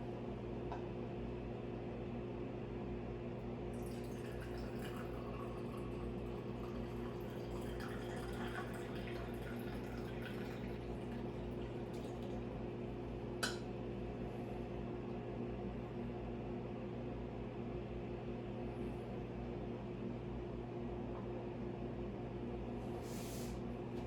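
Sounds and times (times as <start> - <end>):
low electrical hum: 0.0 - 24.0
coffee trickling and dripping: 3.7 - 13.6.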